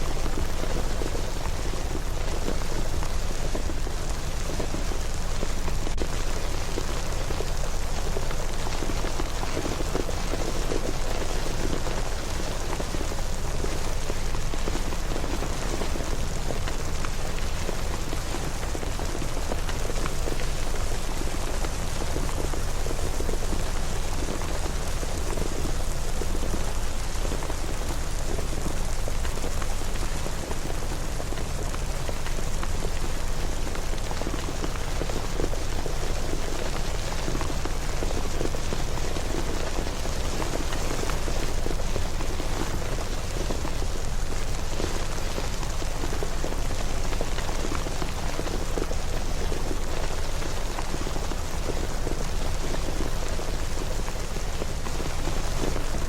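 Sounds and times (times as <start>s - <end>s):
raindrop ticks: 0.0s - 56.0s
steady rain hiss: 0.0s - 56.0s.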